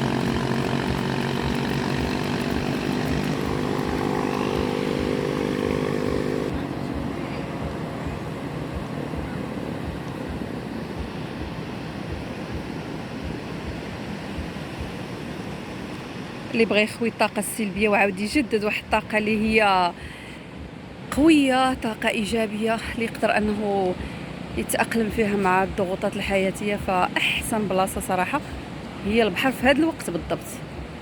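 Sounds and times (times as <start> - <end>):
motor engine droning: 0.0 - 12.7
wind buffeting microphone: 0.0 - 15.9
surf rushing: 0.0 - 17.1.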